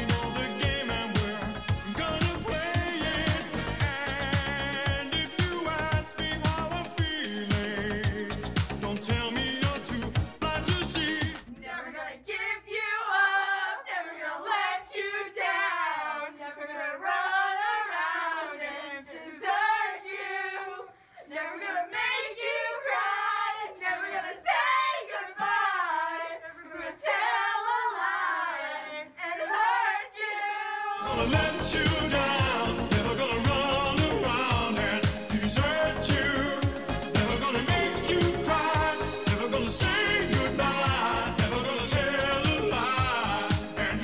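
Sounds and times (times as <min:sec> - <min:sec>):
dance-pop music: 0:00.0 - 0:15.2, 0:21.3 - 0:44.0
girls singing a cappella: 0:11.5 - 0:44.0.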